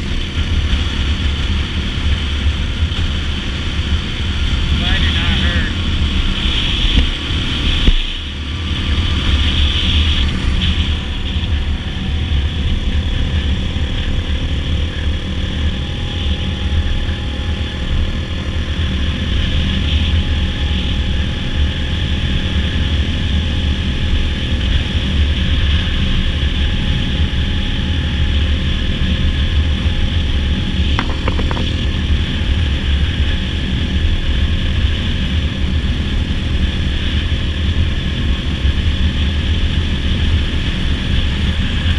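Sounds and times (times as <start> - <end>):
wind rushing over microphone: 0.0 - 20.8
dirt bike engine running: 31.0 - 32.4.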